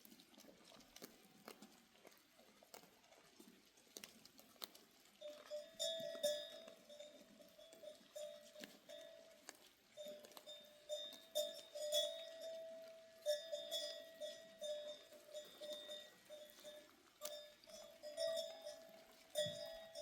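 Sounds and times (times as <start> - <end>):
goat bells clanking: 5.2 - 20.0.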